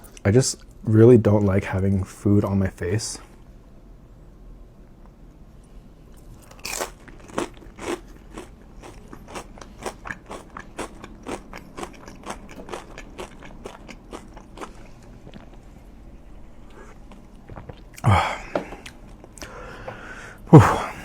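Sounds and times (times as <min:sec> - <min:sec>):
person crunching food: 0:06.2 - 0:15.8.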